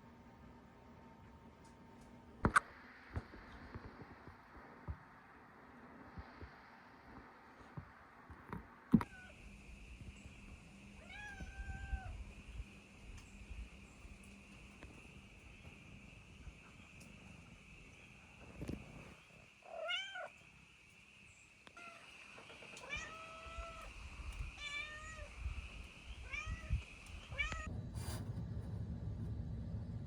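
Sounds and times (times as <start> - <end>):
cat meowing: 9.0 - 9.4, 11.0 - 12.2, 19.7 - 20.3, 22.8 - 23.9, 24.6 - 25.3, 26.2 - 27.7
wind rumble on microphone: 23.5 - 30.0.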